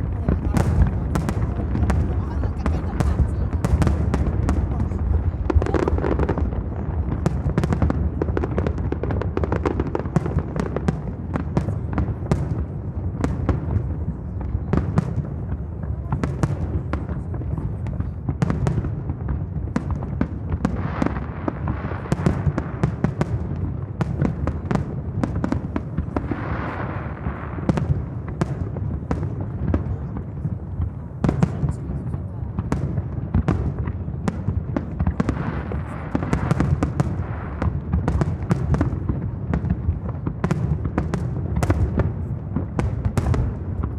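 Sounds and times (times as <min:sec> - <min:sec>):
fireworks cracks and crackling: 0:00.0 - 0:43.9.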